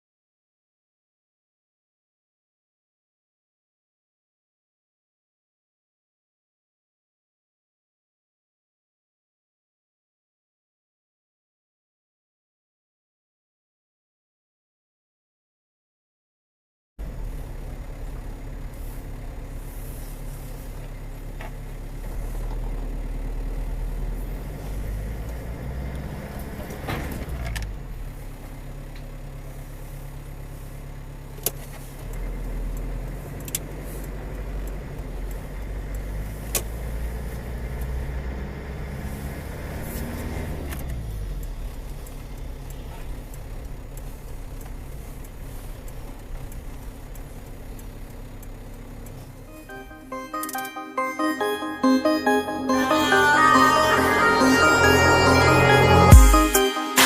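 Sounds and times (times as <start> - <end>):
car engine and road rumble: 17.0 - 50.7
vehicle passing: 22.1 - 28.2, 32.3 - 41.9.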